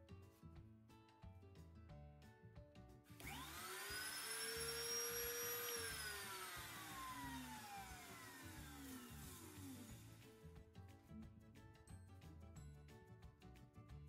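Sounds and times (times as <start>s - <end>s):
background music: 0.0s - 3.6s, 5.8s - 14.0s
router spinning up and down: 3.2s - 10.3s.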